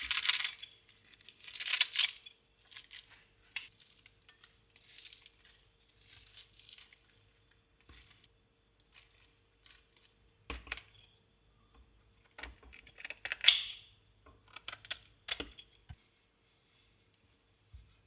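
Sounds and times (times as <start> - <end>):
rustling or scraping: 2.6 - 8.3.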